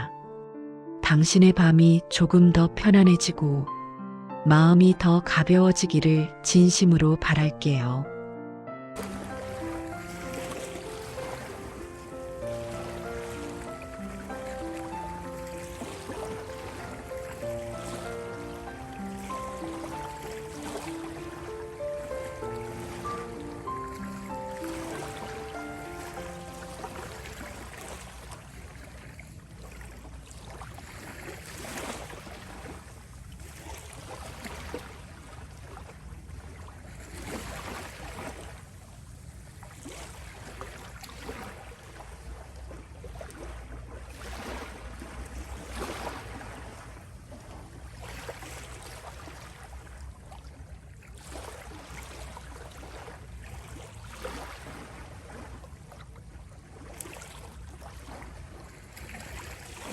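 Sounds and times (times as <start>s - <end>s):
sea waves washing onto shore: 9.0s - 28.8s
low rumble of surf: 9.0s - 59.9s.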